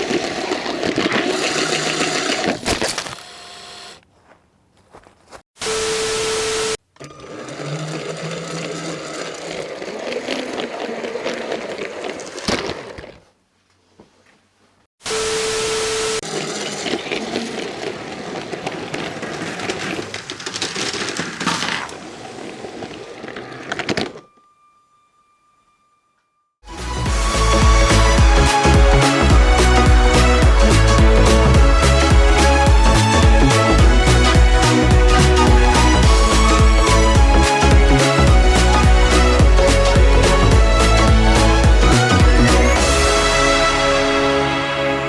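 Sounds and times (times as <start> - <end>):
toy train whirring and rattling: 0.0 - 4.0, 7.0 - 13.2, 16.2 - 24.4
loud hiss with beep tone: 15.0 - 16.2.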